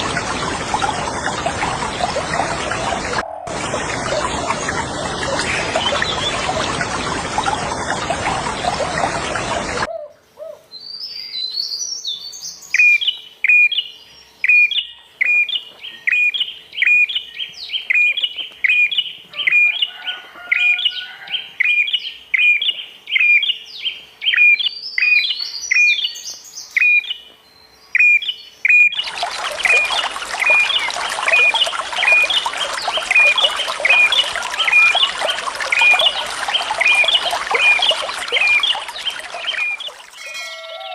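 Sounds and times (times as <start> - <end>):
rushing water: 0.0 - 9.9, 28.9 - 40.6.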